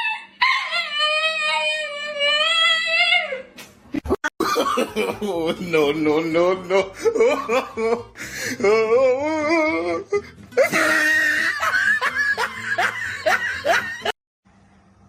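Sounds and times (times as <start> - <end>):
person laughing hard: 4.0 - 9.0, 9.7 - 14.2.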